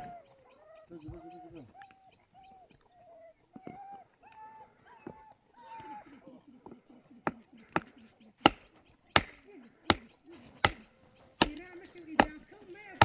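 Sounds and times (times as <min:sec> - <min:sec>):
heavy chopping strikes: 0:07.3 - 0:12.6.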